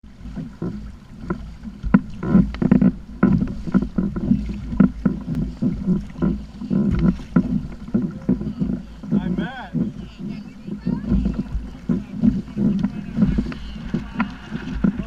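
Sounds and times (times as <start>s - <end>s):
steady low rumble: 0.0s - 15.0s
water slapping against plastic hull: 0.0s - 15.0s.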